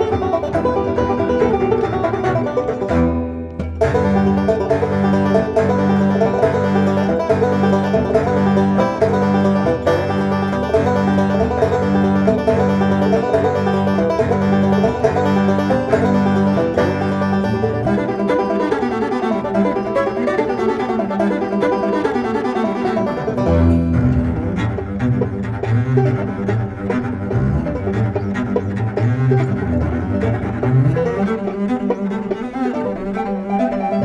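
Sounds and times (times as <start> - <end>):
pulsing bass line: 0.0 - 18.4, 23.0 - 31.3
plucked strings music: 0.0 - 34.0.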